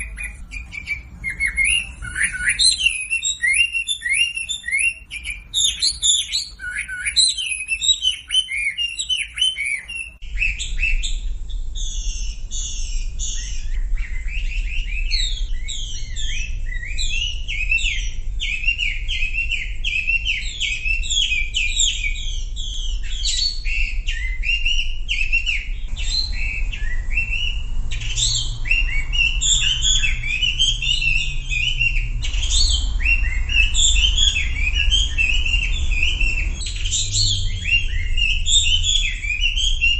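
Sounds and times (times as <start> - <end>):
bird singing whistled phrases: 0.0 - 39.9
low hum: 25.7 - 39.9.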